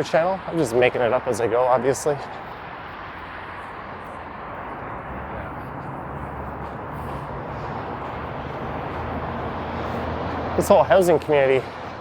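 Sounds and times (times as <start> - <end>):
city traffic noise: 0.0 - 12.0
vehicle engine low hum: 2.2 - 12.0.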